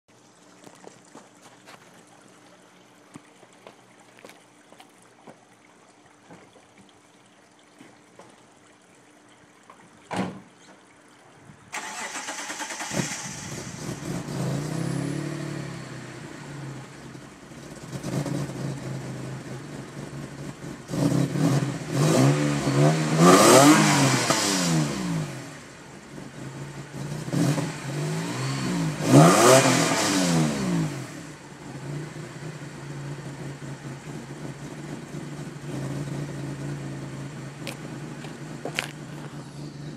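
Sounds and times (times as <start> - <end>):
brief thump: 10.1 - 10.5
car engine starting and revving: 11.7 - 39.9.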